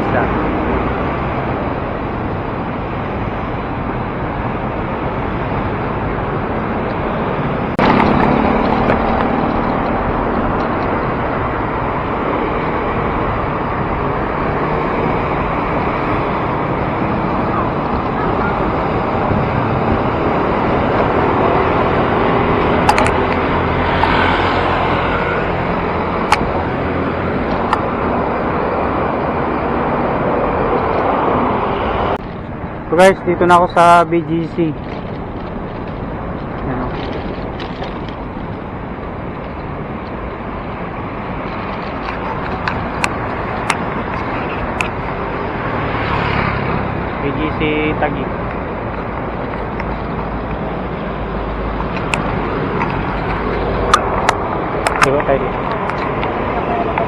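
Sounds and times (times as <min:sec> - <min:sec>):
low vehicle hum: 0:00.0 - 0:57.0
wind and road noise: 0:00.0 - 0:57.0
clicks: 0:22.8 - 0:23.4, 0:51.9 - 0:56.4.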